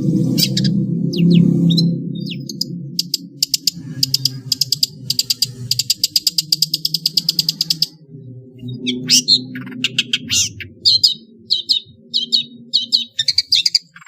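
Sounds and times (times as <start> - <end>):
steady low hum: 0.0 - 14.0
bird chirps: 0.3 - 14.0
bird chattering rattle: 2.3 - 8.0.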